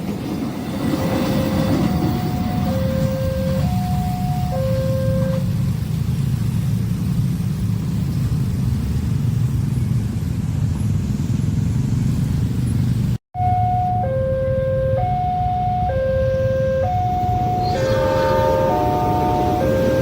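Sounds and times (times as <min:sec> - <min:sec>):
train rumbling past: 0:00.0 - 0:20.0
level-crossing alarm two-note tone: 0:01.4 - 0:05.5, 0:13.4 - 0:20.0.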